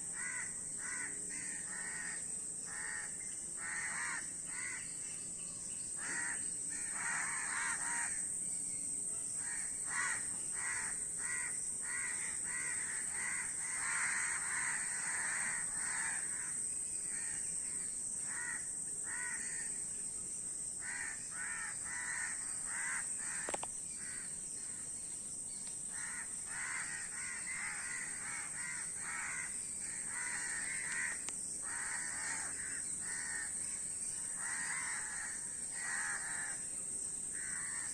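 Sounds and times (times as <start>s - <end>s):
crows cawing: 0.1s - 4.9s, 6.0s - 8.2s, 9.4s - 17.4s, 18.3s - 19.7s, 20.8s - 24.3s, 25.9s - 36.6s, 37.4s - 37.9s.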